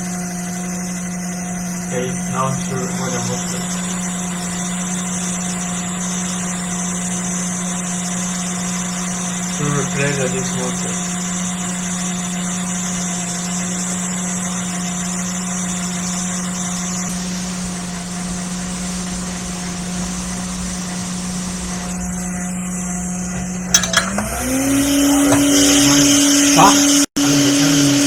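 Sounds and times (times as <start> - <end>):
hot-air station fan hum: 0.0 - 28.0.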